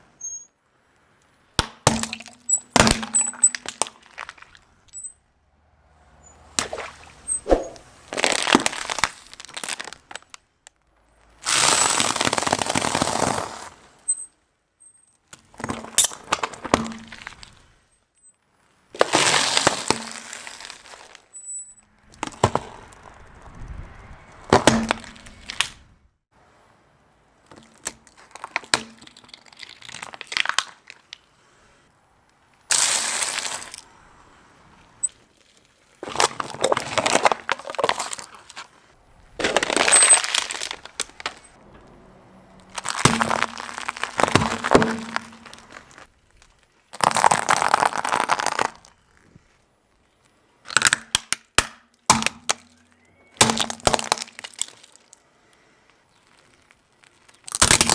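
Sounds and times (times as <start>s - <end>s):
objects crunching under car tyre: 1.6s - 5.2s, 5.8s - 14.4s, 15.1s - 26.0s, 27.4s - 57.9s
glass breaking: 1.8s - 5.1s, 39.4s - 41.5s, 42.7s - 46.1s.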